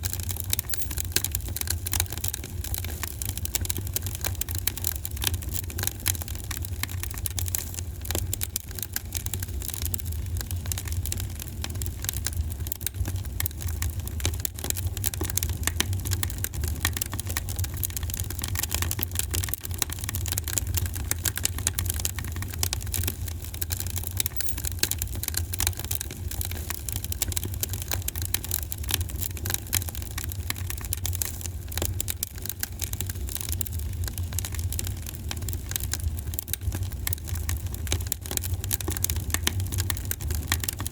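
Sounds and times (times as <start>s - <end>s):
wood fire crackling: 25.4s - 40.9s.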